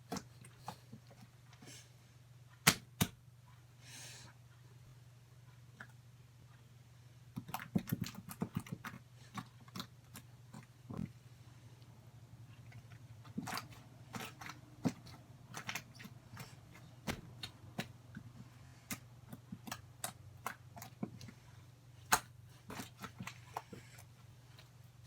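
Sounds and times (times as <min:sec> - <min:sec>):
slime squishing by hand: 0:07.3 - 0:11.2, 0:12.4 - 0:25.0.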